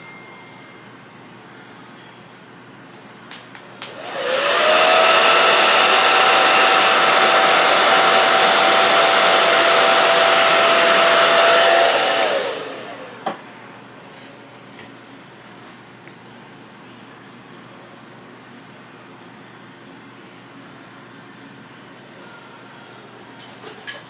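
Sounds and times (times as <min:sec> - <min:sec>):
hair dryer blowing: 0:03.8 - 0:13.4.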